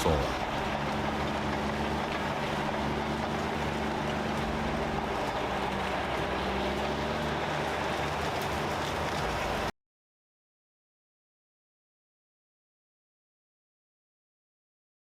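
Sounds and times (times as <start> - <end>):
diesel engine running: 0.0 - 9.7.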